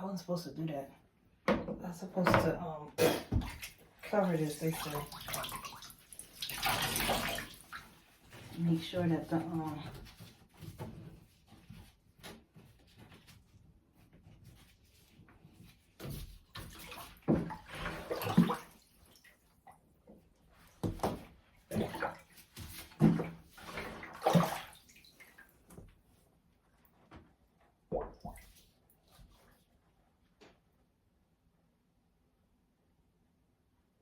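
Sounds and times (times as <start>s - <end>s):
water sloshing in a bathtub: 0.0s - 30.7s.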